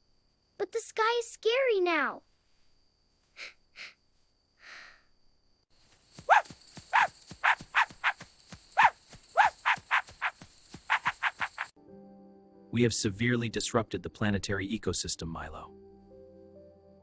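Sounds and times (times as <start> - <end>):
short sharp animal calls: 6.2 - 11.7.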